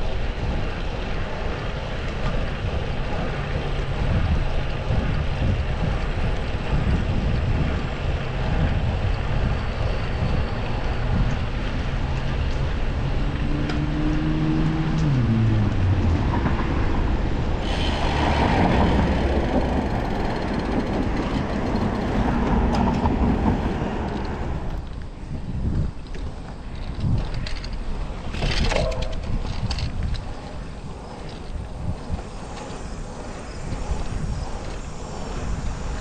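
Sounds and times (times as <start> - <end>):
rush of passing traffic: 0.0 - 25.3, 30.4 - 36.0
wind rushing over microphone: 0.0 - 36.0
passing vehicle engine: 10.6 - 24.8.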